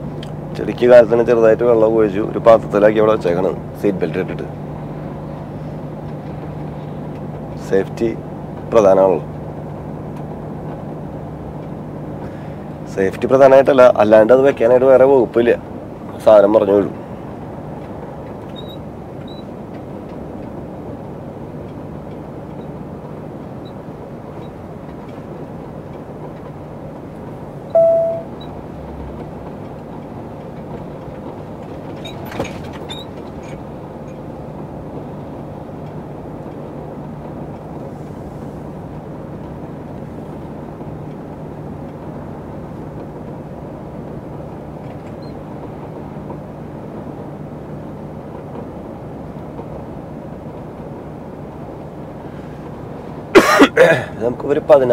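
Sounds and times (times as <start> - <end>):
lorry engine hum: 0.0 - 54.9
road noise: 0.0 - 54.9
short beep: 27.7 - 28.5.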